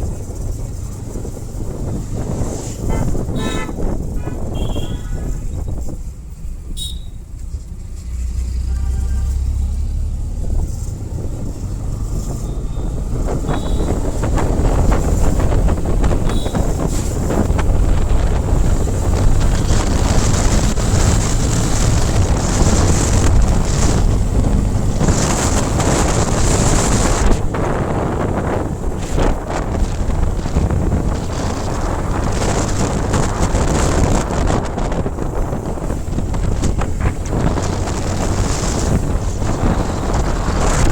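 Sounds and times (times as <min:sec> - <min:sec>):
wind buffeting microphone: 0:00.0 - 0:08.6, 0:09.2 - 0:40.9.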